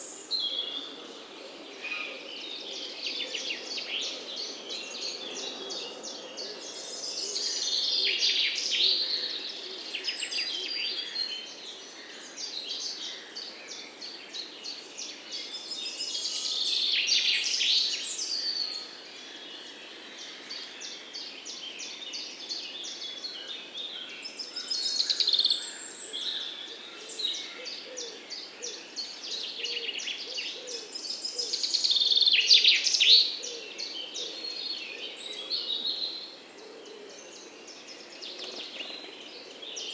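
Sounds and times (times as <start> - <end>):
birds chirping and singing: 19.4 - 39.9.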